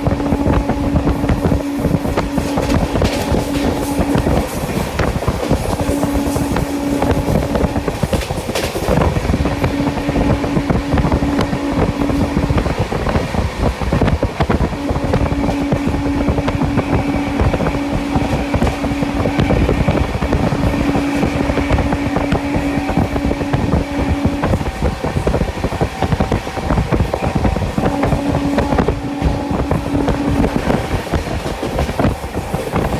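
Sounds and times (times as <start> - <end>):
train wheels clattering on track: 0.0 - 32.9
rushing air: 8.9 - 32.9.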